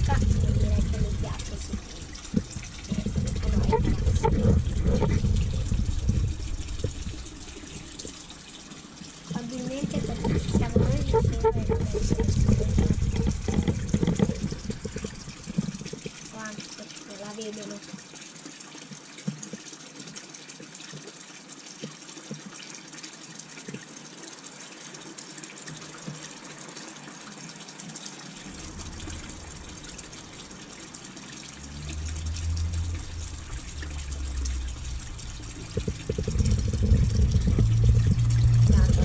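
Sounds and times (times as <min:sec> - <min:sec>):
low rumble: 0:00.0 - 0:08.5, 0:09.7 - 0:15.9, 0:28.4 - 0:39.0
water trickling with bubbles: 0:00.0 - 0:39.0.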